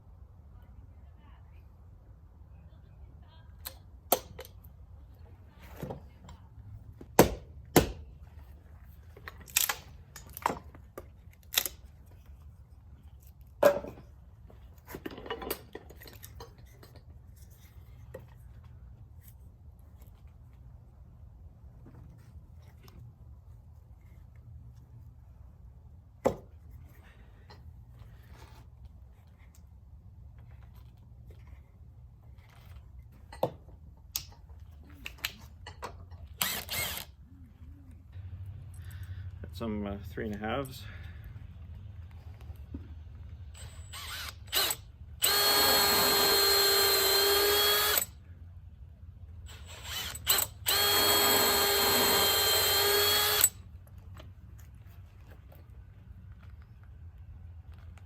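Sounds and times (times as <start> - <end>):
faint low hum: 0.0 - 7.1
tools and lumber knocking: 7.0 - 8.1, 13.6 - 17.2, 26.2 - 26.5, 33.2 - 34.5.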